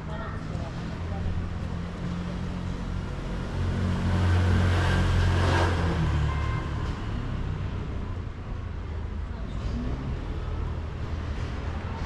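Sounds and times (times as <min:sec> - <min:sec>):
vehicle engine passing by: 0:00.8 - 0:08.0.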